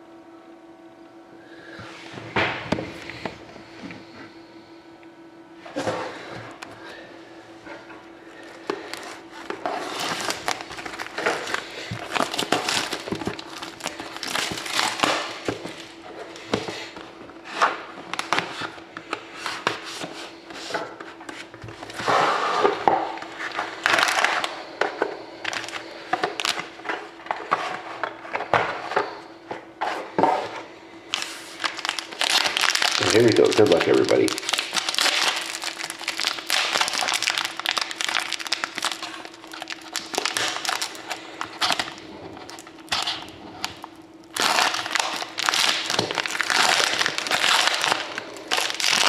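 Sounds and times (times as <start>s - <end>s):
plastic wrapping crinkling and tearing: 8.3s - 20.7s, 21.4s - 24.7s, 25.4s - 28.1s, 31.1s - 49.0s.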